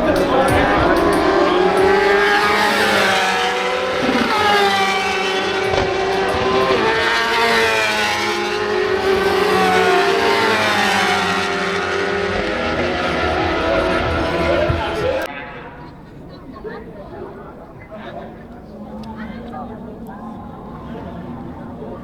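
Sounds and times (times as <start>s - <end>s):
racing motorcycles at high revs: 0.0s - 15.3s.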